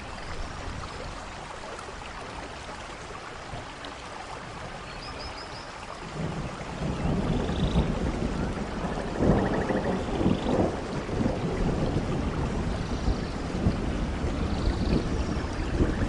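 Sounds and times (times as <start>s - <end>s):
heavy rain: 0.0s - 16.0s
rolling thunder: 6.1s - 16.0s.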